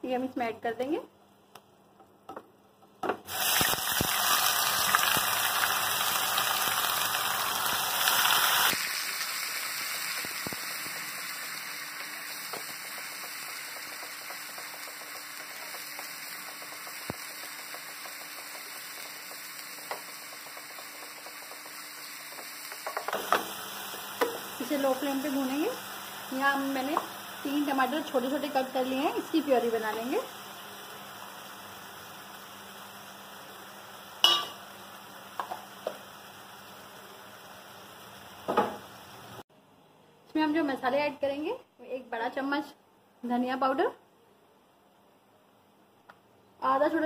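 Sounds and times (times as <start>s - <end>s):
paste sizzling in hot oil: 3.3s - 39.4s.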